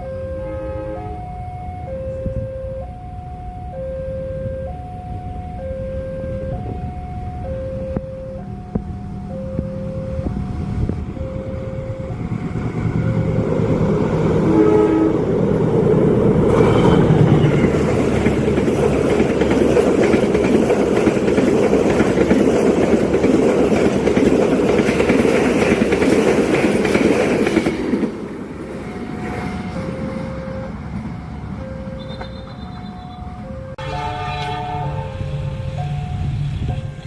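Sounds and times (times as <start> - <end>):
crossing warning two-note tones: 0.0 - 15.4, 29.2 - 37.0
train passing with wheel clatter: 4.5 - 37.0.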